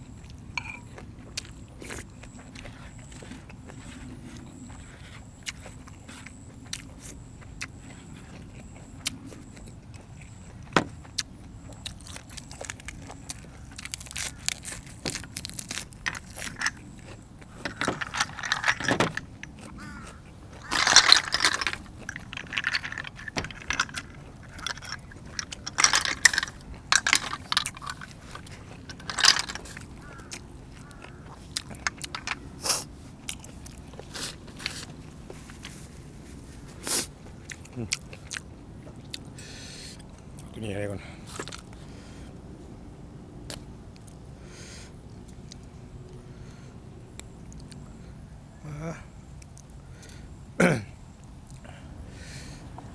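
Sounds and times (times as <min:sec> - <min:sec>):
chewing and crunching: 0:00.0 - 0:50.4, 0:51.1 - 0:52.9
clicks and clinks of shells: 0:13.8 - 0:16.8, 0:17.6 - 0:31.0, 0:31.6 - 0:32.4.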